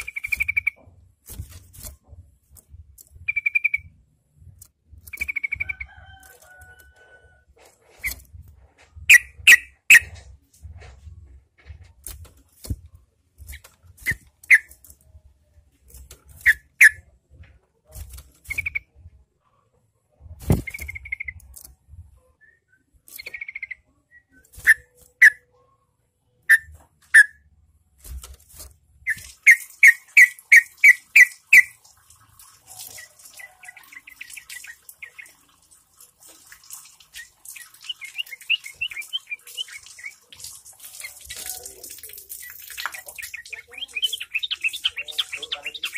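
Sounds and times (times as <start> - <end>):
birds calling with whistled notes: 0.0 - 0.8, 3.2 - 3.9, 9.1 - 10.1, 29.1 - 31.8, 37.1 - 40.3, 42.3 - 45.9
birds chattering: 32.8 - 35.5, 37.1 - 45.9.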